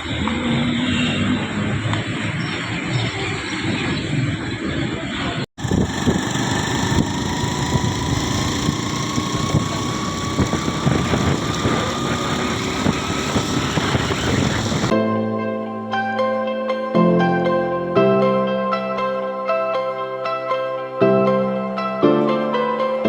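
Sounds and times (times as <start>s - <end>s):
faint whine rising in pitch: 5.6s - 14.9s
vehicle rumble with small knocks: 5.6s - 14.9s.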